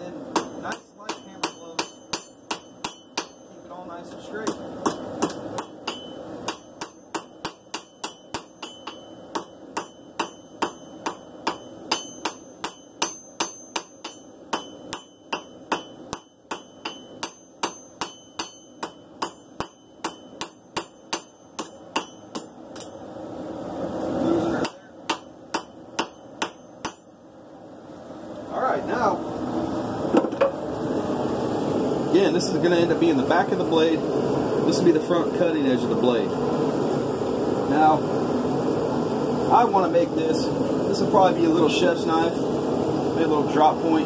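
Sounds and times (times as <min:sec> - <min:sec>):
hammer striking steel on anvil: 0:00.3 - 0:03.8, 0:04.4 - 0:23.1, 0:24.5 - 0:27.3.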